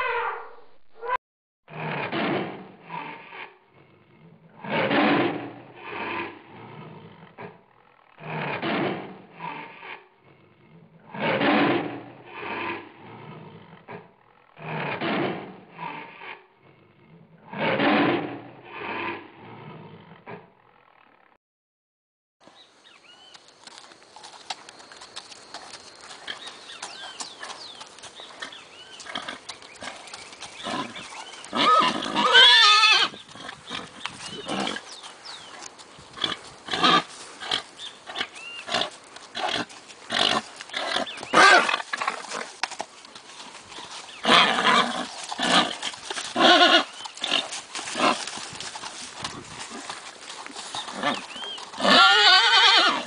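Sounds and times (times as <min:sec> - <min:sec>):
horse whinnying loudly: 0:30.6 - 0:33.2, 0:36.7 - 0:37.1, 0:38.7 - 0:42.1, 0:44.2 - 0:48.3, 0:50.8 - 0:53.0.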